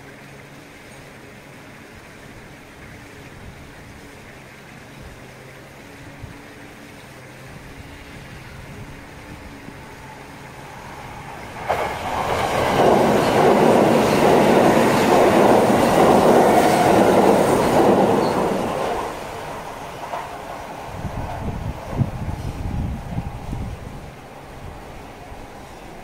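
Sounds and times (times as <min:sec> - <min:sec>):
train wheels rushing on rail: 0:08.8 - 0:26.0.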